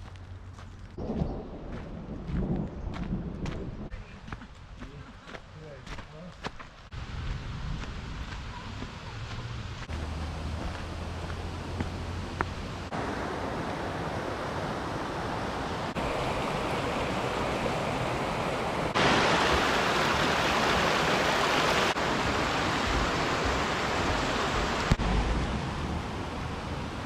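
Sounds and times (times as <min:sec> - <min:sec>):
roar of rushing water: 0:08.6 - 0:27.0.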